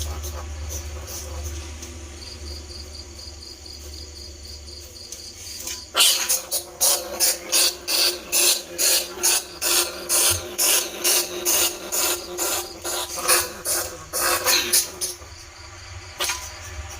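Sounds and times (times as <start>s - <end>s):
rhythmic squeaking: 0.0s - 3.2s, 5.6s - 15.6s.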